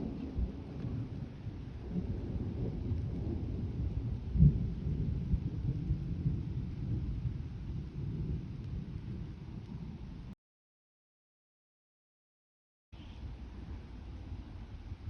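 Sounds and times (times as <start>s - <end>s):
thunder rumbling: 0.0s - 10.4s.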